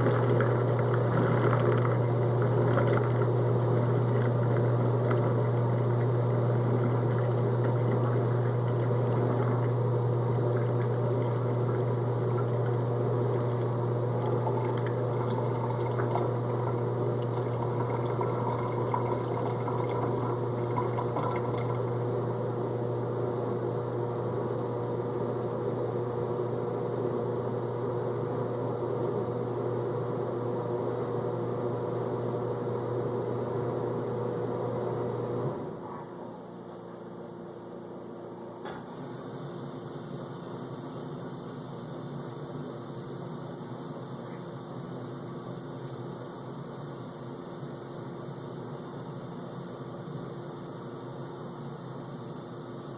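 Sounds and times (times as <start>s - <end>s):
water gurgling: 0.0s - 22.5s
dishwasher drain pump humming: 0.0s - 52.9s.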